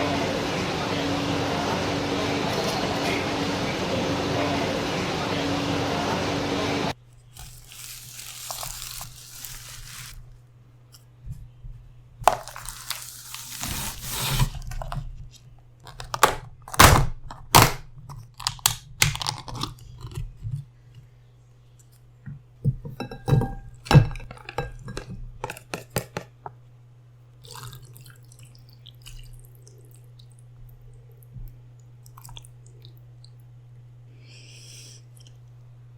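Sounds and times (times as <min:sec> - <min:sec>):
low hum: 0:00.0 - 0:07.3
chewing and mouth smacks: 0:27.4 - 0:33.6, 0:35.1 - 0:35.7.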